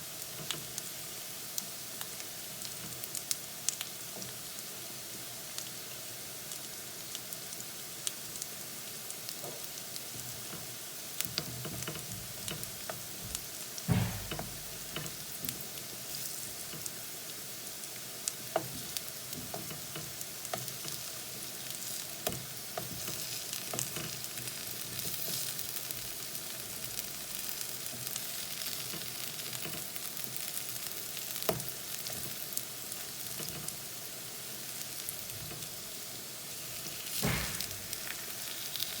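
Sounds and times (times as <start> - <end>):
plantain sizzling in oil: 0.0 - 39.0
loud knock: 13.9 - 14.9, 37.2 - 38.2.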